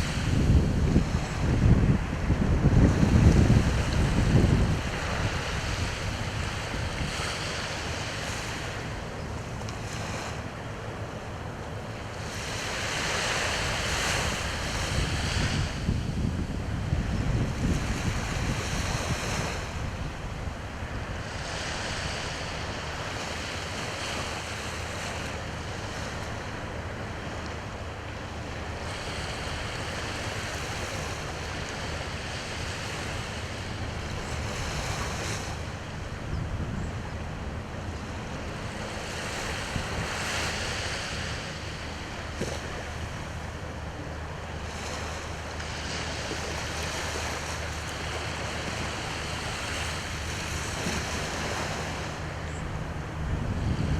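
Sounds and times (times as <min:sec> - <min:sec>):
sea waves washing ashore: 0:00.0 - 0:53.9
wind rumbling on microphone: 0:00.0 - 0:53.9.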